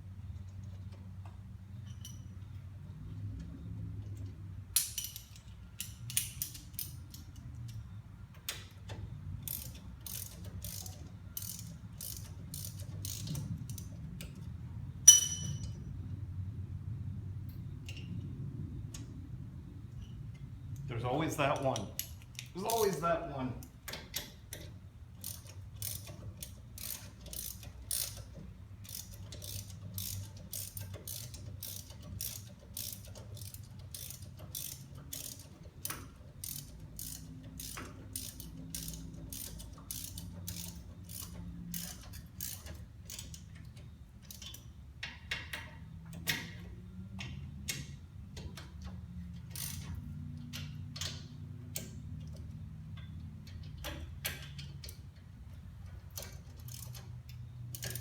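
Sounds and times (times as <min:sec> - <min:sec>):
low steady hum: 0:00.0 - 0:58.0
socket ratchet clicking: 0:04.8 - 0:07.8, 0:08.4 - 0:14.4, 0:23.6 - 0:58.0.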